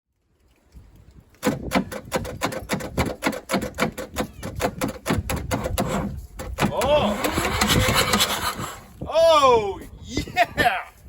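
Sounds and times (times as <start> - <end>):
diesel engine cranking: 1.4 - 9.0.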